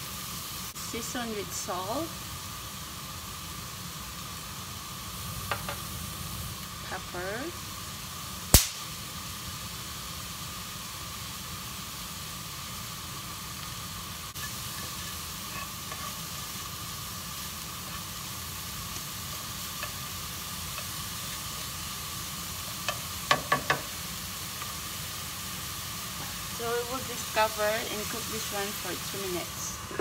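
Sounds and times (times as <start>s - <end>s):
vegetables sizzling in a skillet: 0.0s - 30.0s
spatula stirring: 14.4s - 16.8s, 17.4s - 21.8s.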